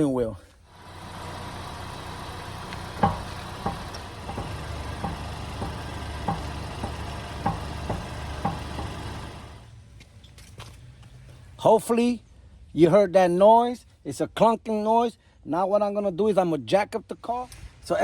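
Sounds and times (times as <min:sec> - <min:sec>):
car engine idling: 0:00.7 - 0:09.7
steering clunks: 0:00.7 - 0:09.7.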